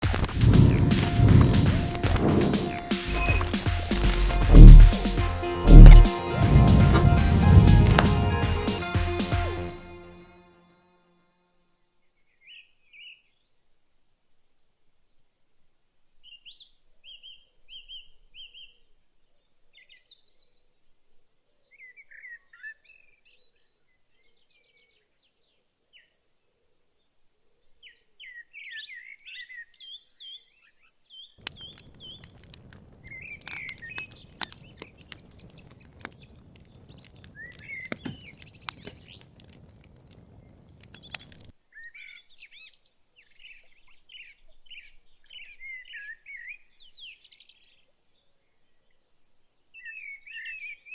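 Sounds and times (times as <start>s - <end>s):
rushing noise with crackling clicks: 0.0s - 8.6s, 31.4s - 41.5s.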